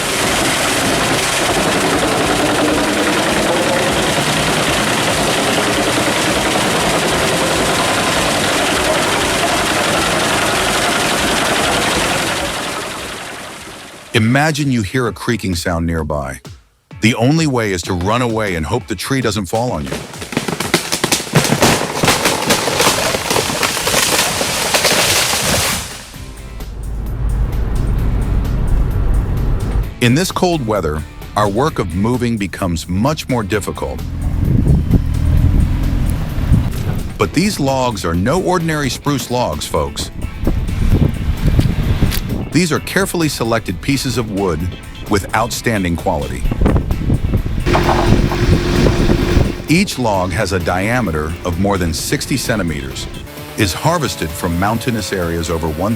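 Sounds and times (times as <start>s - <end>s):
heavy machine engine running: 0.0s - 14.1s, 33.9s - 37.8s, 47.3s - 54.5s
tree wood cracking and snapping: 19.9s - 26.1s.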